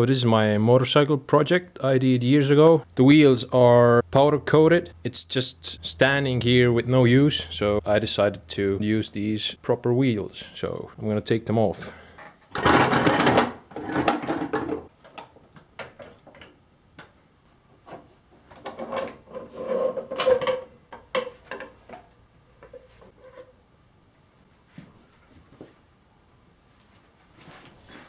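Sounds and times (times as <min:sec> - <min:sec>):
metal tools clanking and scraping: 0:12.2 - 0:16.5, 0:17.9 - 0:23.6.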